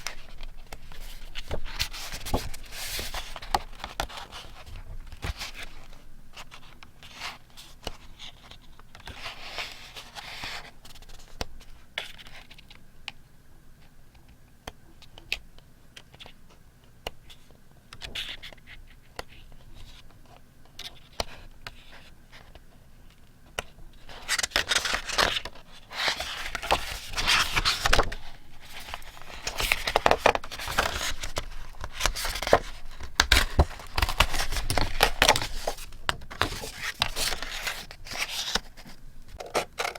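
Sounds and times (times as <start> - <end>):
paper rustling and crinkling: 0.0 - 12.7, 23.6 - 39.9.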